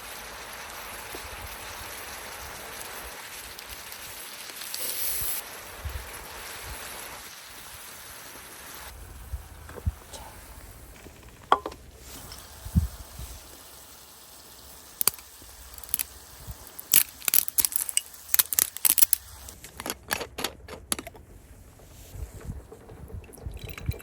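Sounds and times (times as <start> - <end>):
clicks and crinkling rustles: 15.0 - 23.9.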